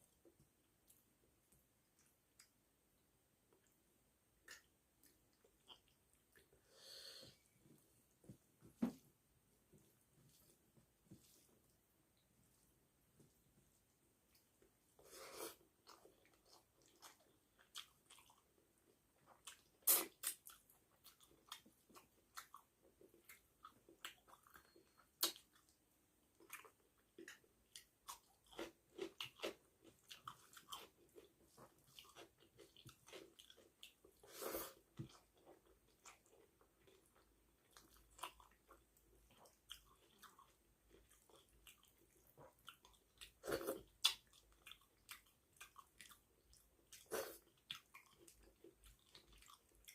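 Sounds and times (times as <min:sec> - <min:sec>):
person chewing food: 0:04.4 - 0:07.5, 0:14.3 - 0:49.9.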